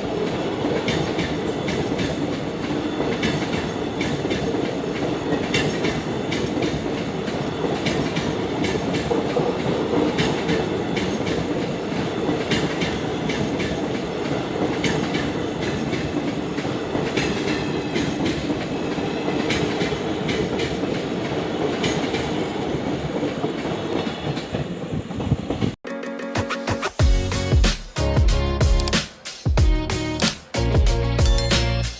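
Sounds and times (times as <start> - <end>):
train wheels clattering over rail joints: 0.7 - 25.8.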